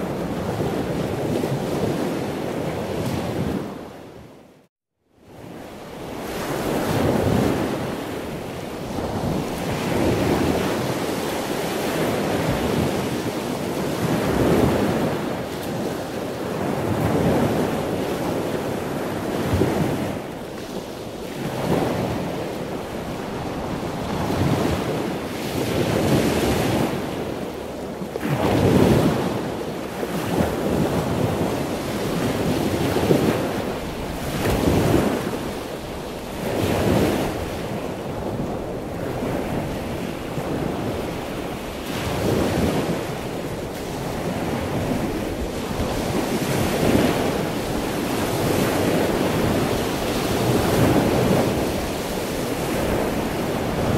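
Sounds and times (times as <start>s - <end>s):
ocean waves washing in: 5.3s - 53.9s.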